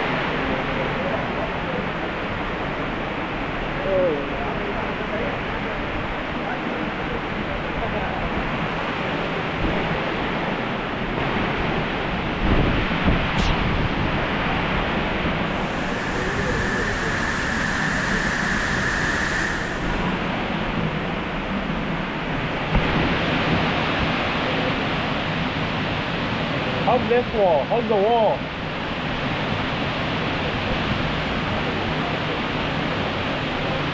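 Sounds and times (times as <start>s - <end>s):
waterfall rushing: 15.5s - 20.4s.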